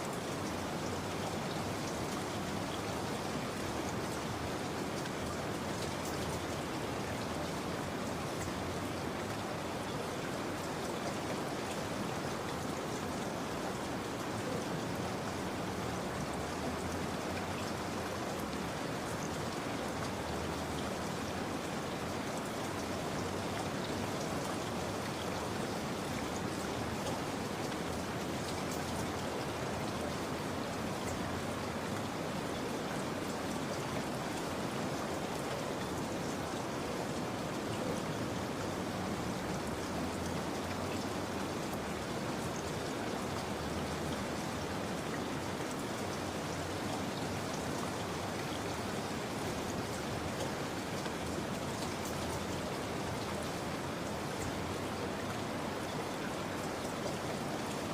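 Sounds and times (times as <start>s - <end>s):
steady rain falling: 0.0s - 57.9s.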